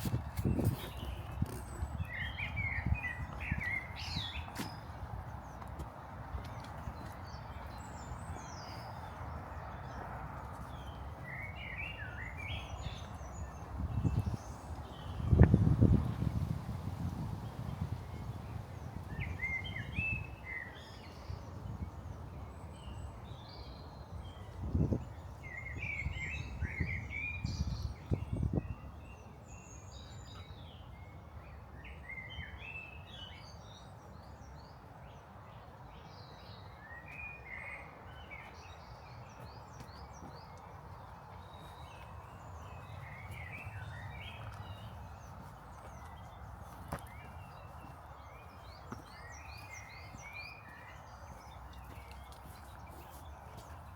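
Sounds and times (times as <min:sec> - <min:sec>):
small birds chirping: 0:00.0 - 0:16.5, 0:36.0 - 0:53.9.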